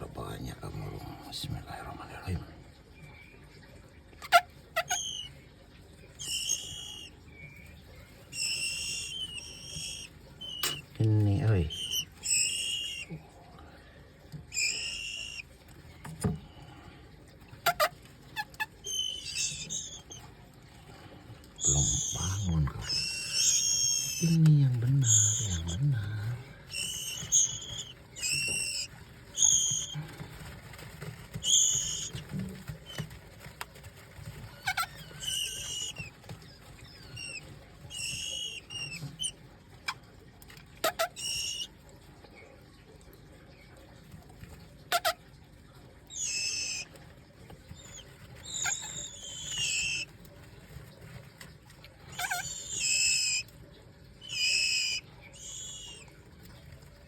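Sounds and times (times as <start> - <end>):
bird giving squeaky calls: 4.2 - 5.3, 6.2 - 7.1, 8.3 - 13.1, 14.5 - 15.4, 17.6 - 20.2, 21.6 - 24.4, 25.0 - 30.0, 31.3 - 33.1, 34.6 - 36.1, 36.8 - 39.3, 40.8 - 41.7, 44.9 - 45.2, 46.1 - 46.9, 47.7 - 50.1, 52.1 - 53.5, 54.2 - 56.1.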